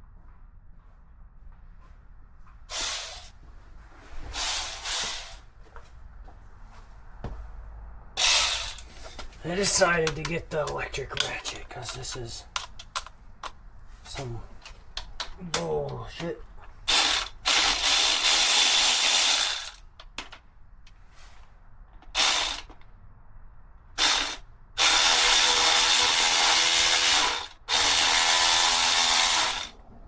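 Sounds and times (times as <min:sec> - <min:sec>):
electric ratchet whining: 0:02.7 - 0:03.3, 0:04.4 - 0:05.4, 0:08.2 - 0:09.2, 0:16.9 - 0:19.8, 0:22.1 - 0:22.8, 0:24.0 - 0:29.8.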